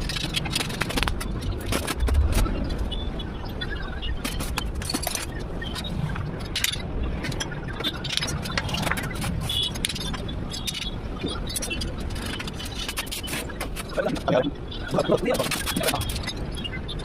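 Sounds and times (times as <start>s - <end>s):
steady low rumble: 0.0s - 12.8s.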